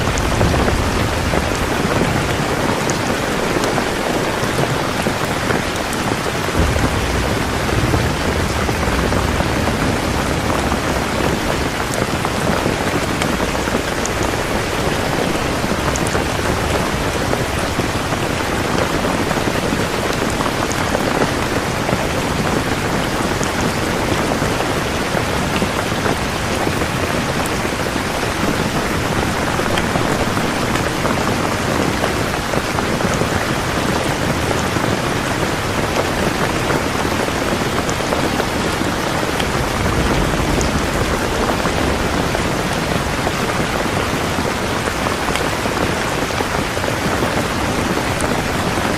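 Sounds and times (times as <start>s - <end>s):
low rumble: 0.0s - 4.6s, 6.1s - 20.8s, 38.4s - 48.6s
heavy rain falling: 0.0s - 48.9s.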